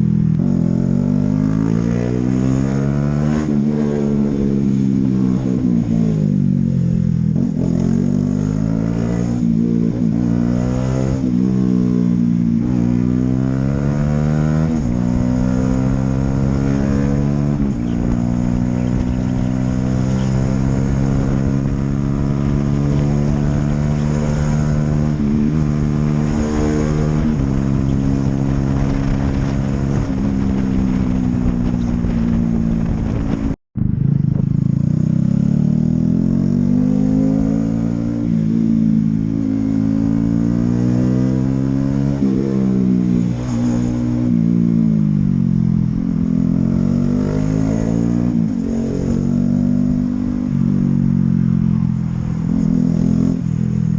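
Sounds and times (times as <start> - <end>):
motorcycle engine running: 13.7 - 40.8.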